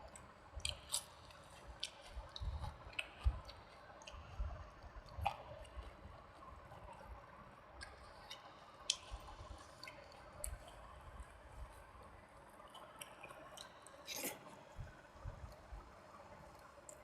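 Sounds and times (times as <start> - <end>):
chewing wet food: 0.1 - 17.0
wet mouth clicks and smacks: 0.6 - 4.2.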